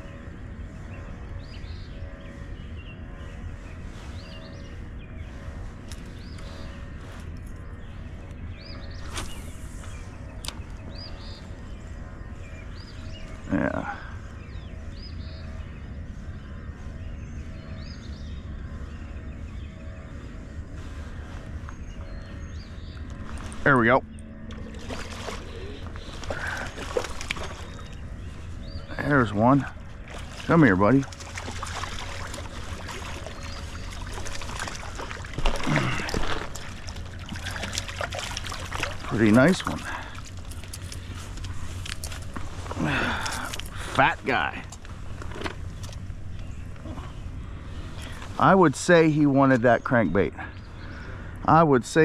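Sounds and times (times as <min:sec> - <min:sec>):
birds chirping: 0:00.0 - 0:52.0
steady low rumble: 0:00.0 - 0:52.0
water trickling and splashing: 0:24.5 - 0:28.0, 0:29.2 - 0:44.0.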